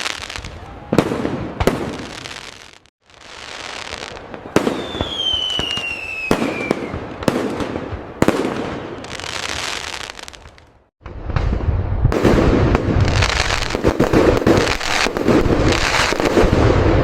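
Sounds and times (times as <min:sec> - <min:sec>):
firework bangs: 0:00.0 - 0:17.0
firework crackling: 0:00.0 - 0:17.0
firework whistle gliding down: 0:04.6 - 0:07.2.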